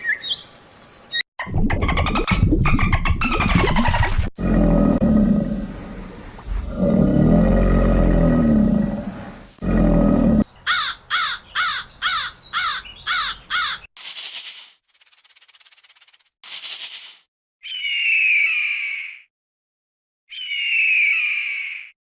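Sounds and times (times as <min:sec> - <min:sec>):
big cat roaring: 0:04.4 - 0:10.5.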